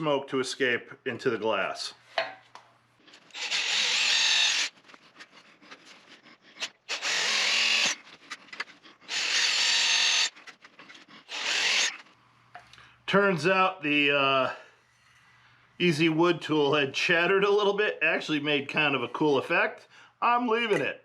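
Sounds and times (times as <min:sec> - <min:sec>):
power drill boring wood: 0:03.3 - 0:04.8, 0:06.6 - 0:08.0, 0:09.1 - 0:10.4, 0:11.2 - 0:12.1.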